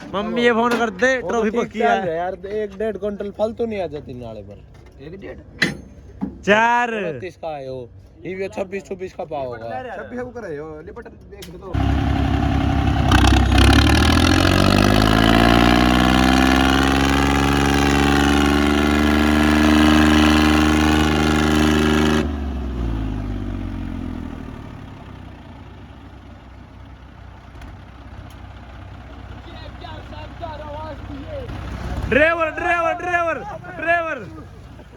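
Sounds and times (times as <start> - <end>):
tractor diesel engine revving: 11.8 - 34.9.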